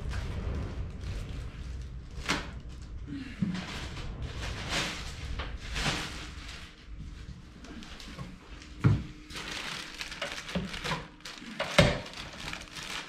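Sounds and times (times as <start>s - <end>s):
packaging rustling: 7.7s - 13.0s.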